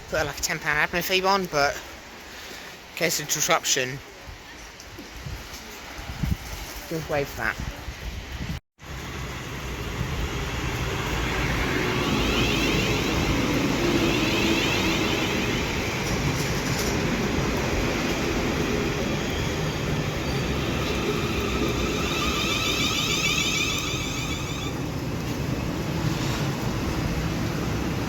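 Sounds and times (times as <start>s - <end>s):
electric train rumbling: 8.8s - 28.0s.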